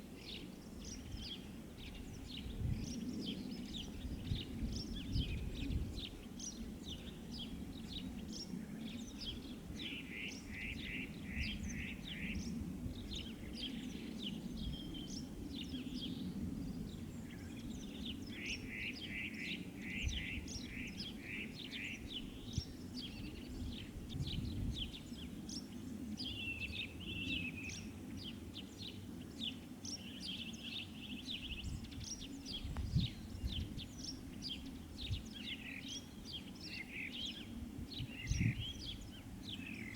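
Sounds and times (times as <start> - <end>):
small birds chirping: 16.9 - 39.9.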